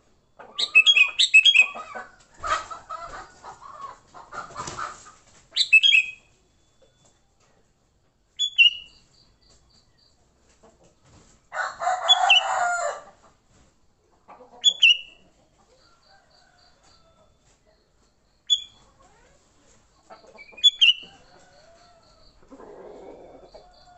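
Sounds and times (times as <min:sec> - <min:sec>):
rooster crowing: 0:11.5 - 0:13.2.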